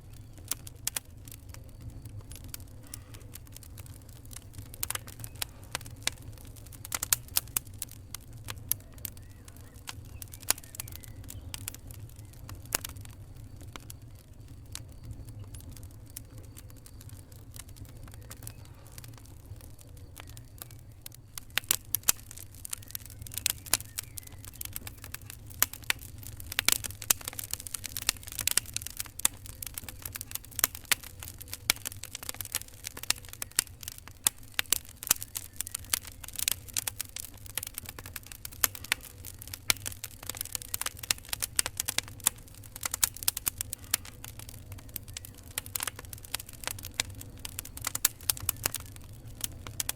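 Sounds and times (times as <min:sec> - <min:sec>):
fire crackling and popping: 0:00.0 - 0:49.9.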